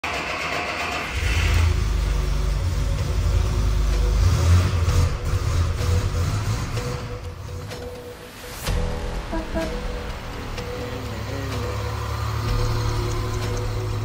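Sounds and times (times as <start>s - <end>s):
engine starter cranking: 0.0s - 8.0s
car engine rumbling: 1.0s - 14.0s.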